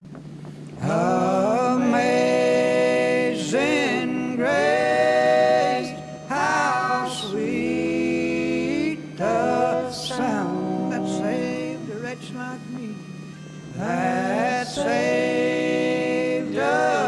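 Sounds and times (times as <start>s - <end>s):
person singing slow phrases: 8.7s - 15.5s.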